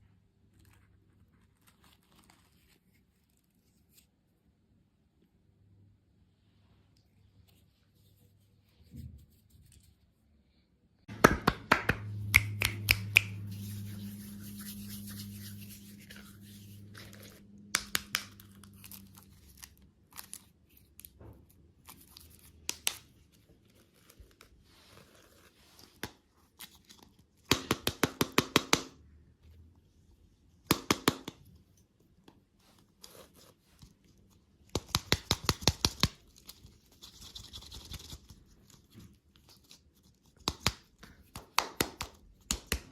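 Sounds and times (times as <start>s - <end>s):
candy wrapper crackling and tearing: 16.2s - 21.2s.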